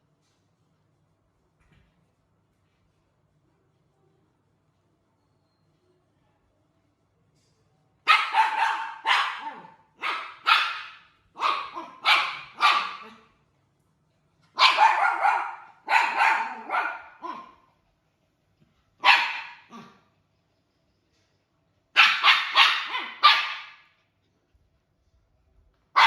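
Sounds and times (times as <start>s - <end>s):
dog barking: 8.0s - 13.3s, 14.6s - 17.7s, 19.0s - 20.1s, 21.9s - 24.0s.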